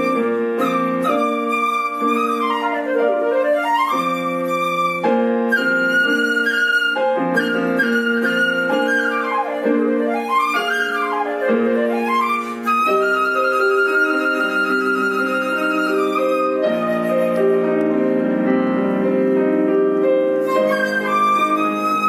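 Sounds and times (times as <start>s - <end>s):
flute playing: 0.0s - 22.0s
piano chords: 0.0s - 22.0s.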